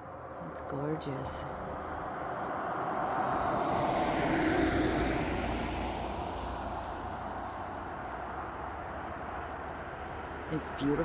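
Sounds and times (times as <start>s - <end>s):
vehicle passing by: 2.9s - 7.8s.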